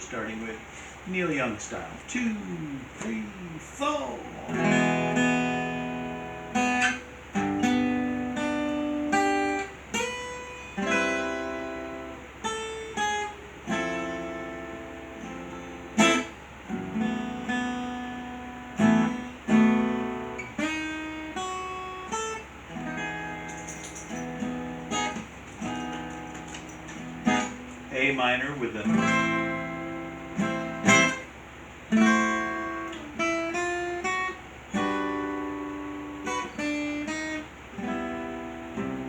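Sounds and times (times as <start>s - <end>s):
solo acoustic guitar: 2.1s - 39.0s.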